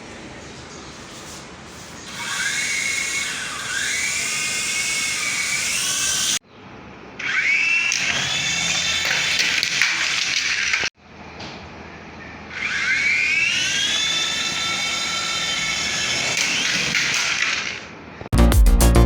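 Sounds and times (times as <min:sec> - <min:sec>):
toy helicopter motor whining: 0:01.8 - 0:06.4, 0:07.2 - 0:10.9, 0:12.6 - 0:17.9.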